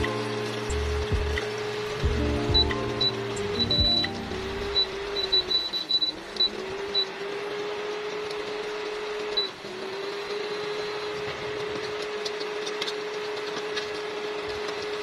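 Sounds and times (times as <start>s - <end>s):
steady hum: 0.0s - 6.7s
chicken sizzling in oil: 0.0s - 15.0s.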